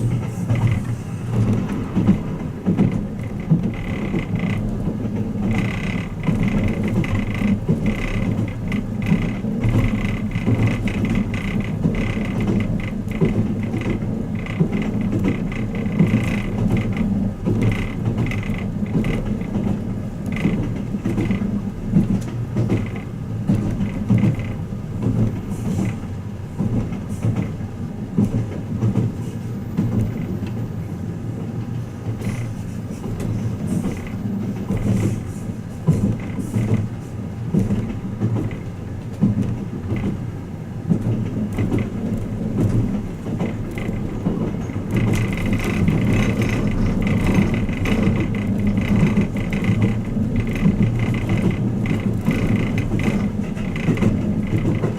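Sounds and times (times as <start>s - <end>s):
creaks and clicks of fittings: 0.0s - 26.0s
train running rumble: 0.0s - 54.9s.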